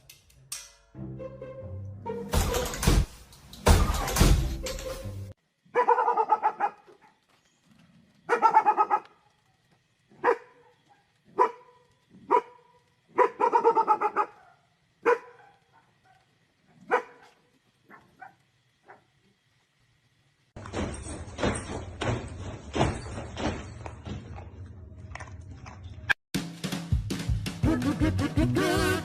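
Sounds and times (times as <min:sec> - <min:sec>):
music: 0:00.8 - 0:05.3, 0:26.4 - 0:29.0
dog barking: 0:05.7 - 0:07.2, 0:08.3 - 0:09.2, 0:10.1 - 0:19.1.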